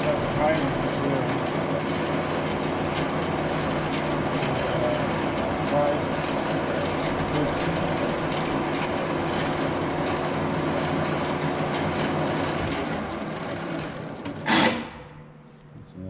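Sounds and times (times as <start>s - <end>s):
lathe running with clatter and whine: 0.0s - 15.0s
lathe electric brake burst: 14.3s - 15.1s.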